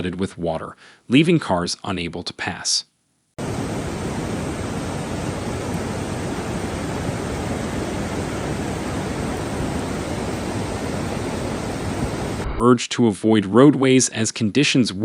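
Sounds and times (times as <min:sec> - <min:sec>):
rushing storm water: 0:03.4 - 0:12.6.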